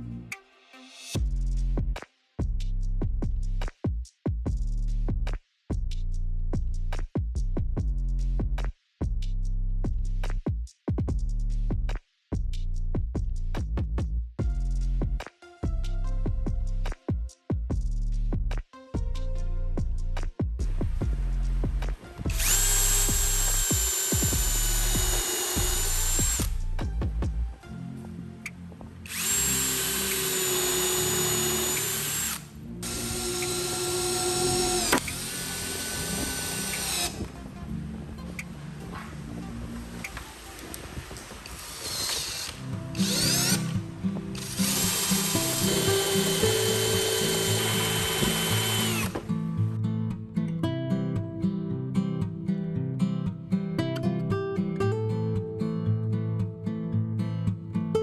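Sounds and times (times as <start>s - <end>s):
music with steady beat: 1.1s - 38.7s, 42.0s - 49.3s
power tool motor whining: 22.3s - 26.6s, 29.1s - 37.4s, 40.3s - 49.2s.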